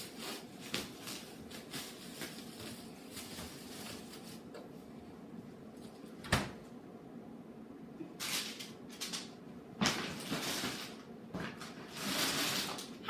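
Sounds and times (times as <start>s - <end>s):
groceries rustling: 0.0s - 4.6s, 8.2s - 13.0s.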